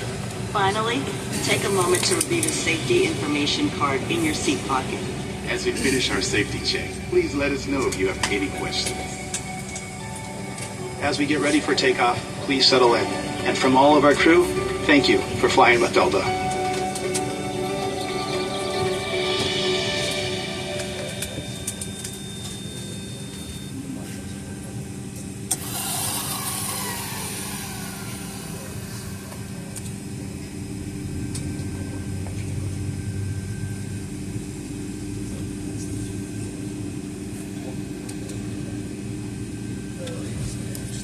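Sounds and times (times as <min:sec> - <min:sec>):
aircraft cabin hum: 0:00.0 - 0:41.0
brief falling whine: 0:14.8 - 0:34.0.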